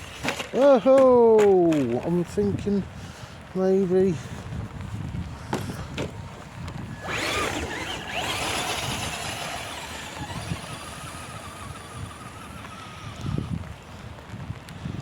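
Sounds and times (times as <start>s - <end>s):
electric motor whining: 6.9s - 13.8s.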